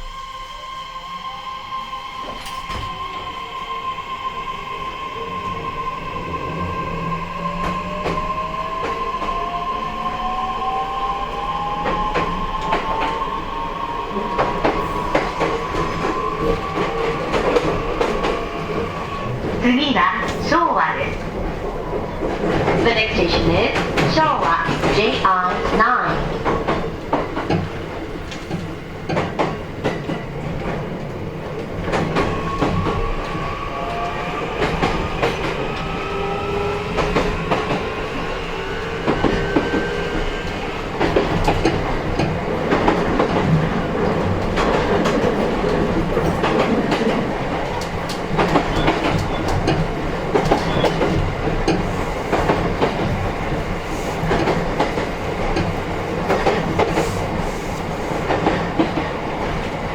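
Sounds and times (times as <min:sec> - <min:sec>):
train wheels clicking over rail joints: 0:38.6 - 0:59.8.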